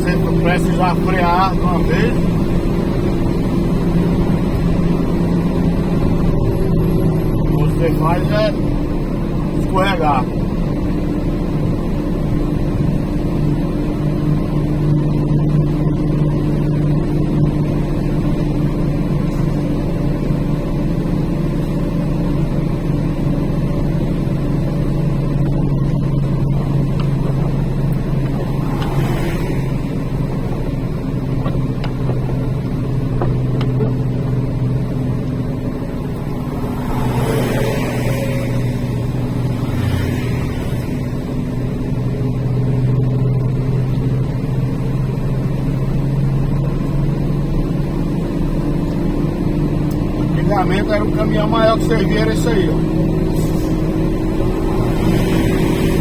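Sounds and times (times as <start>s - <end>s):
truck diesel engine droning: 0.0s - 56.0s
air brake hiss: 53.3s - 53.9s.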